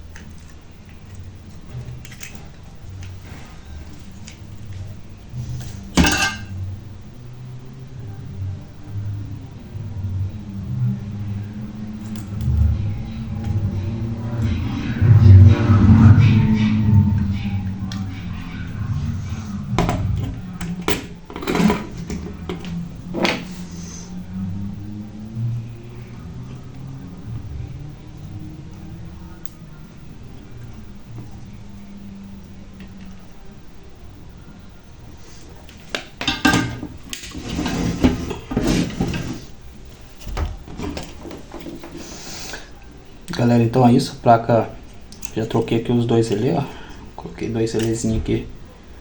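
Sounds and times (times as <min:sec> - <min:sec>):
steady low hum: 0:00.0 - 0:49.0
hard objects knocking and clattering: 0:19.8 - 0:23.5, 0:35.8 - 0:39.6.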